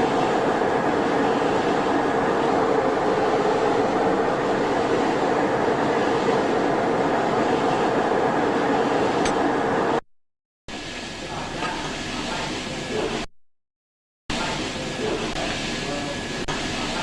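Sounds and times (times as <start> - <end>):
metal lathe running: 0.0 - 10.0.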